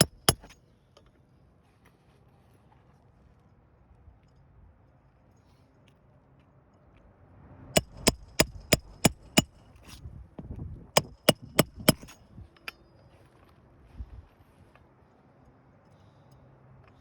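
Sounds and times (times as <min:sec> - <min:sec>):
hammer tapping metal: 0:00.0 - 0:00.6, 0:07.8 - 0:09.6.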